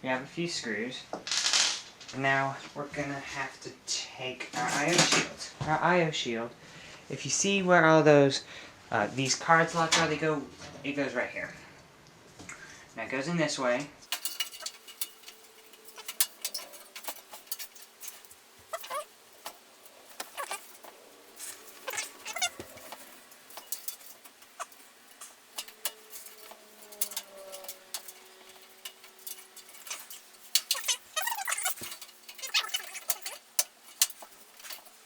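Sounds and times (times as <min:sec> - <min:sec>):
metal clicks taps and scrapes: 0:14.1 - 0:35.0.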